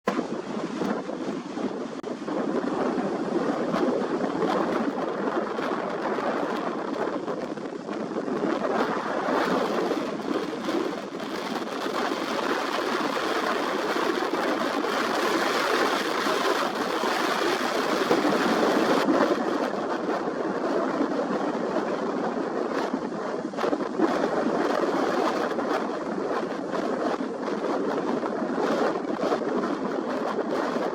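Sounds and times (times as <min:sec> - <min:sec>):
ocean surf: 0:00.0 - 0:30.9
strong wind: 0:00.0 - 0:30.9
wind buffeting microphone: 0:00.0 - 0:30.9.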